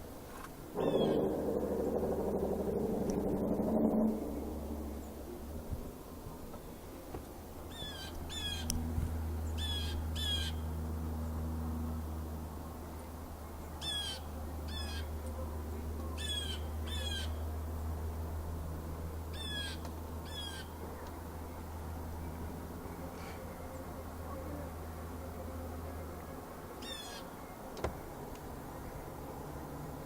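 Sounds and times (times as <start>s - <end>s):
steady low hum: 0.0s - 30.0s
bird harsh calls: 0.8s - 1.3s, 9.6s - 10.6s, 13.8s - 15.1s, 16.2s - 17.4s, 19.3s - 20.8s, 26.8s - 27.4s.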